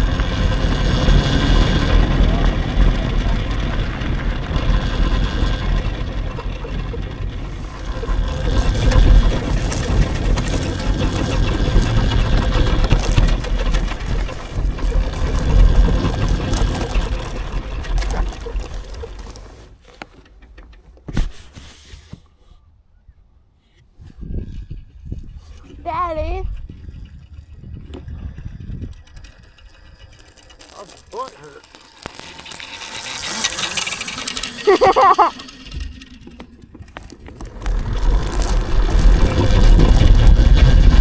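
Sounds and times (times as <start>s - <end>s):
electric dirt bike rumble: 0.0s - 21.6s, 24.0s - 41.0s
wind on microphone: 24.0s - 30.2s, 37.2s - 41.0s.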